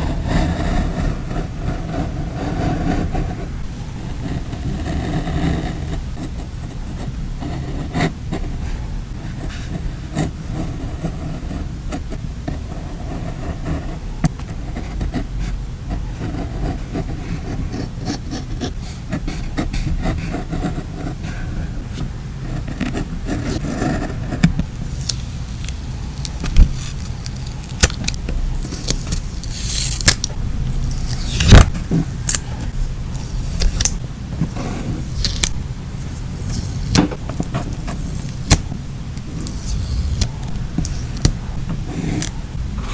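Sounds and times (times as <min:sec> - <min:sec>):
steady low hum: 0:00.0 - 0:42.9
paper crinkling and rustling: 0:24.6 - 0:42.9.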